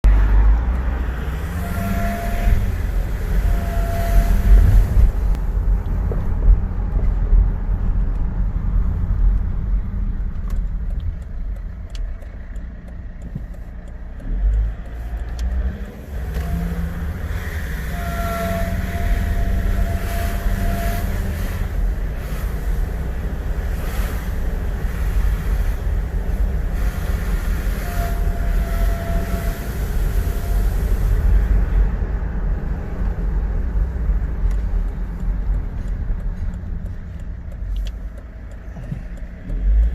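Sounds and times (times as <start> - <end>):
diesel car engine: 0.0 - 39.9
road rumble: 0.0 - 39.9
high-pitched whine: 0.1 - 5.8, 15.8 - 31.8.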